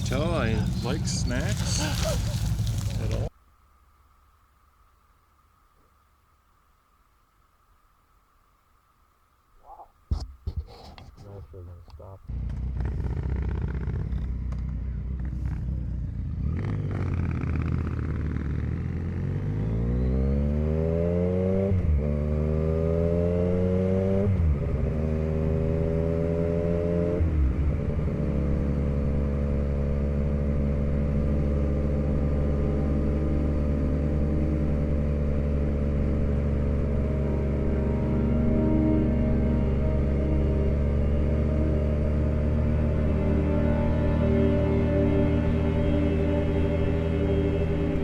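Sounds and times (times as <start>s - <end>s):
motorcycle accelerating through gears: 12.3s - 48.0s.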